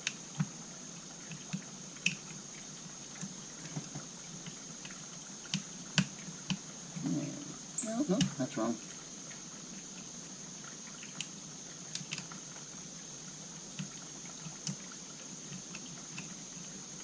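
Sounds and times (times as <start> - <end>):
steady hiss: 0.0 - 17.0
small clicks and taps of parts: 1.3 - 2.4, 3.2 - 6.6, 11.9 - 12.4, 15.5 - 16.4.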